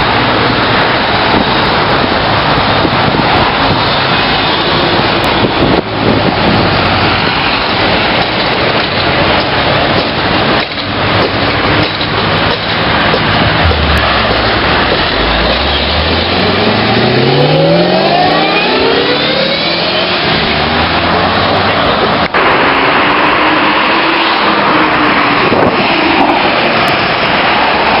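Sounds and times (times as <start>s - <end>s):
loud rushing noise: 0.0s - 28.0s
car engine accelerating: 12.4s - 24.8s.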